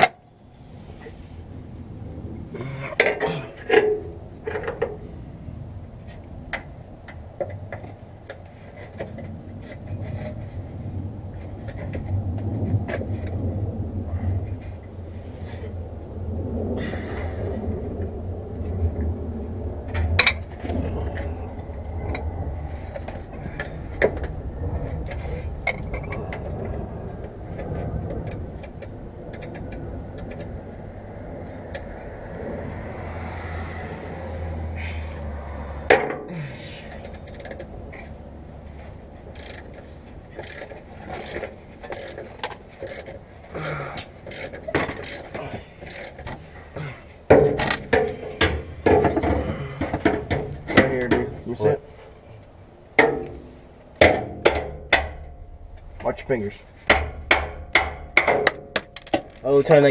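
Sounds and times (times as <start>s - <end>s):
steady low hum: 0.0s - 59.9s
metal clicks and knocks: 27.6s - 30.5s, 36.9s - 38.2s, 39.2s - 43.4s, 44.0s - 46.5s, 47.3s - 51.5s, 53.0s - 56.2s, 56.8s - 59.9s.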